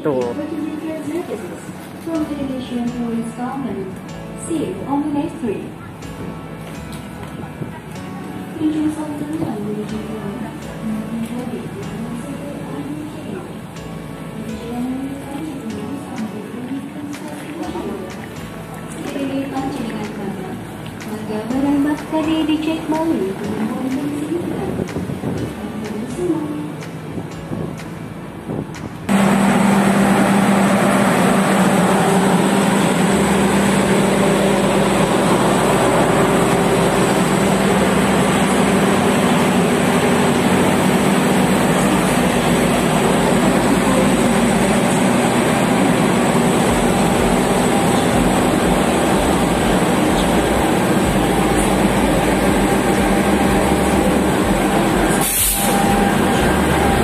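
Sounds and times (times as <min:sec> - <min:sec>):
train rumbling on rails: 0:00.0 - 0:57.0
low hum: 0:29.0 - 0:57.0.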